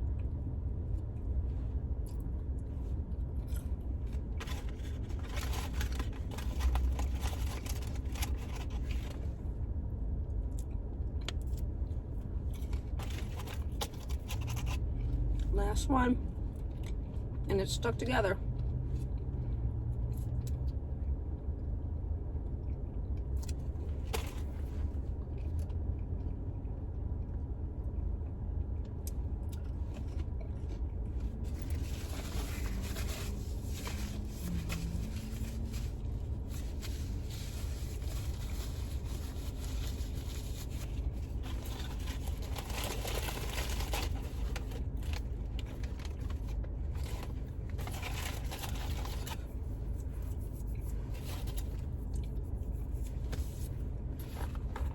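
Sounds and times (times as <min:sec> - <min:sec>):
car low rumble: 0:00.0 - 0:54.9
person chewing crunchy food: 0:03.4 - 0:09.0
food packaging rustling: 0:04.1 - 0:09.2, 0:12.6 - 0:14.9, 0:31.4 - 0:50.0.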